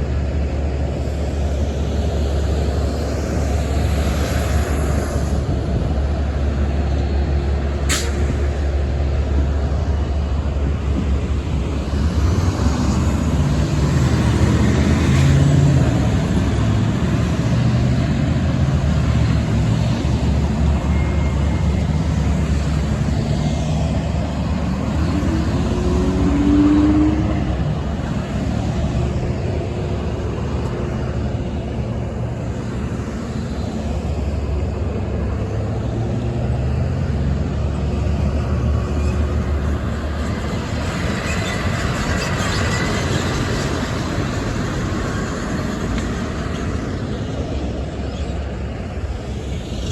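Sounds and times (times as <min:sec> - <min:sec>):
vehicles passing: 0:00.0 - 0:49.9
rising engine tone: 0:20.2 - 0:31.2.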